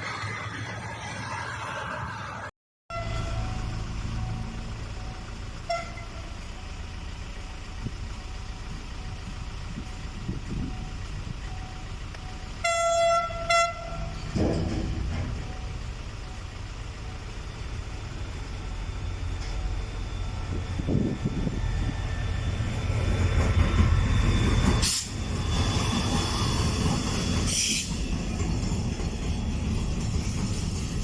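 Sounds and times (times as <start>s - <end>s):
freight train rumbling past: 0.0s - 31.0s
train horn blasts: 2.9s - 3.8s, 5.6s - 6.4s, 12.6s - 14.4s.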